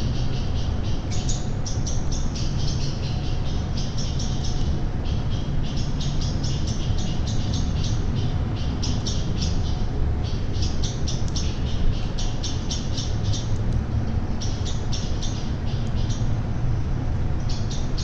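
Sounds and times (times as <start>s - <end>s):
small bird calling: 0.0s - 16.4s, 17.4s - 18.0s
steady low rumble: 0.0s - 18.0s.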